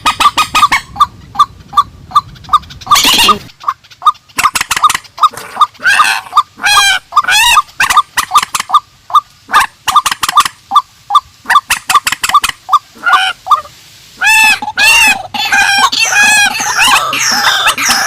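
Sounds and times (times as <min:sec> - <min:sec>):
loud arching bird calls: 0:00.0 - 0:10.5, 0:14.2 - 0:18.0.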